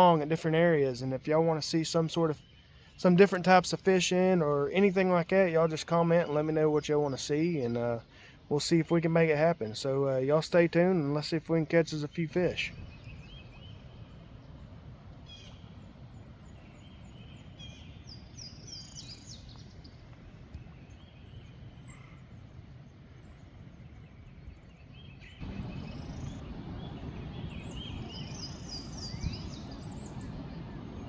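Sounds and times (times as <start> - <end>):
songbirds singing: 0.0 - 31.0
low outdoor rumble: 12.1 - 31.0.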